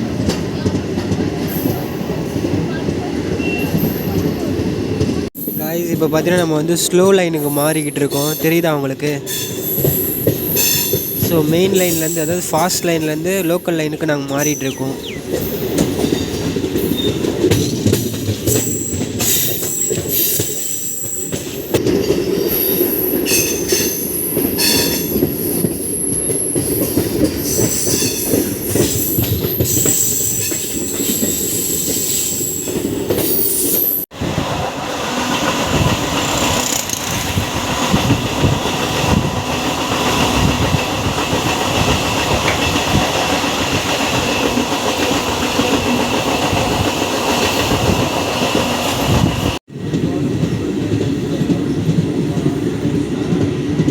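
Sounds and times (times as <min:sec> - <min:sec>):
train running rumble with rail clatter: 0:00.0 - 0:53.9
train wheels squealing and clattering: 0:09.2 - 0:12.7, 0:14.3 - 0:34.0, 0:35.2 - 0:49.6.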